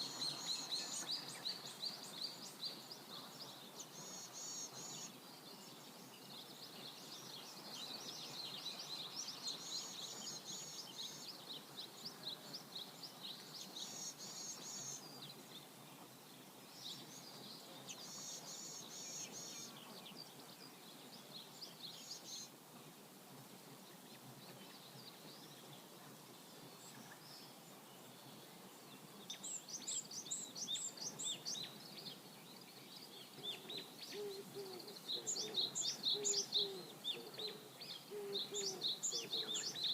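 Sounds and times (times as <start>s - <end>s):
birds chirping and trilling: 26.7s - 39.9s.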